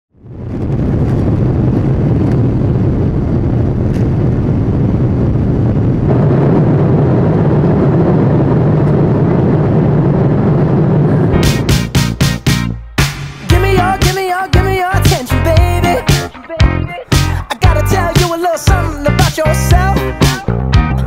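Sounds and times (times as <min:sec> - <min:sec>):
low vehicle rumble: 0:00.2 - 0:14.0.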